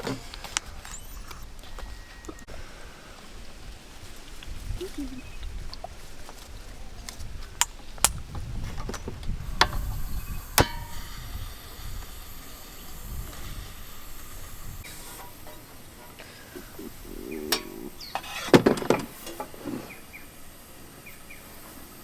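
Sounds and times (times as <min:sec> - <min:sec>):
faint hiss: 0:00.0 - 0:22.0
short metallic ring: 0:10.6 - 0:11.7.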